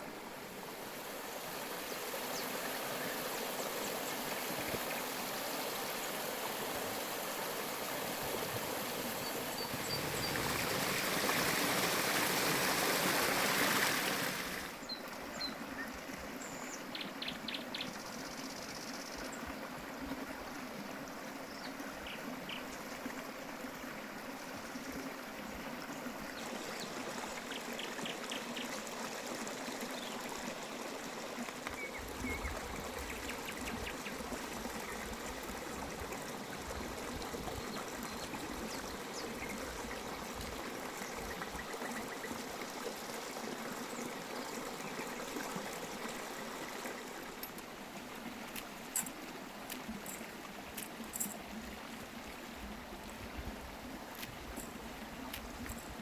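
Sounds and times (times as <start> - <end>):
water running and trickling: 25.8 - 56.0.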